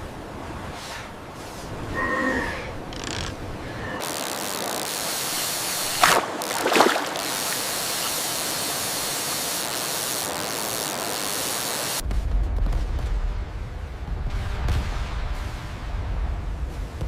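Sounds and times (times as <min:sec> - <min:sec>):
rushing water: 0:00.0 - 0:12.0
water splashing surges: 0:02.7 - 0:12.0.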